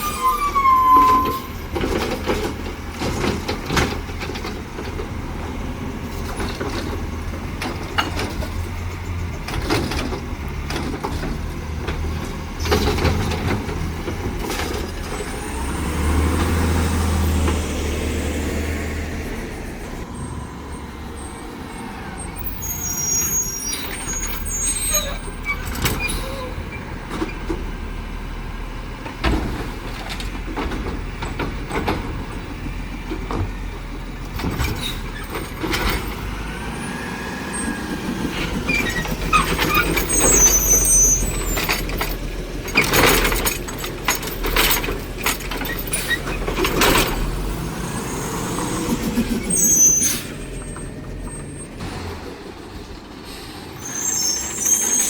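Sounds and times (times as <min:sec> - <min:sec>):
high-pitched squeals: 0:00.0 - 0:01.8, 0:19.3 - 0:26.8, 0:36.5 - 0:42.1, 0:47.8 - 0:51.8, 0:53.8 - 0:55.0
diesel engine running: 0:00.0 - 0:55.0.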